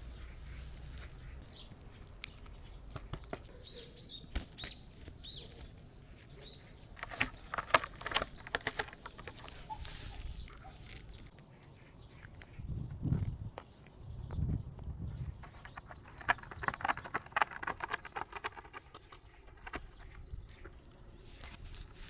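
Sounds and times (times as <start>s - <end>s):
rustling and tapping: 4.2s - 12.3s, 15.4s - 22.0s.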